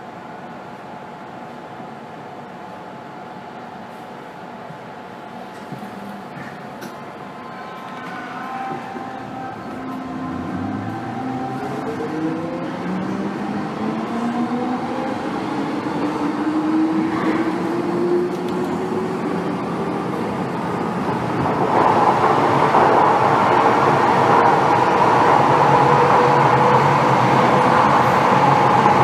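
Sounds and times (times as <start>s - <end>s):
train running on track: 0.0s - 29.0s
train traction motor whine: 6.8s - 20.8s.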